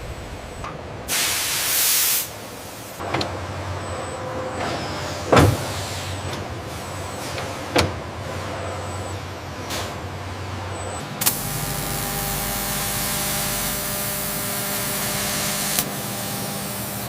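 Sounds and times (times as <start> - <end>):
low machine hum: 0.0 - 1.1, 11.2 - 17.0
compressed air hiss: 1.1 - 3.0, 11.2 - 17.0
heavy machine clunk: 4.2 - 8.7
sharp machine clicks: 11.2 - 11.9.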